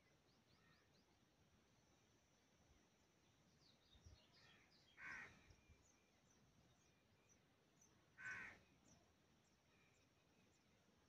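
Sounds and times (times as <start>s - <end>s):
short bird calls: 4.4s - 5.5s, 8.2s - 8.6s.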